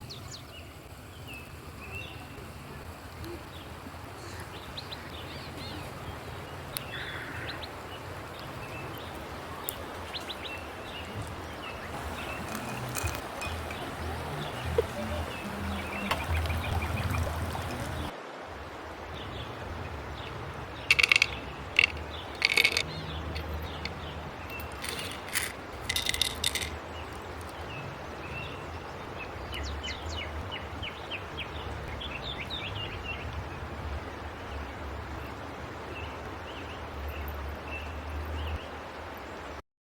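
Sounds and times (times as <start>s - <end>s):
small birds chirping: 0.0s - 18.1s, 19.1s - 38.7s
wind rumble on microphone: 0.0s - 39.2s
loud rustling or clattering: 20.9s - 27.5s.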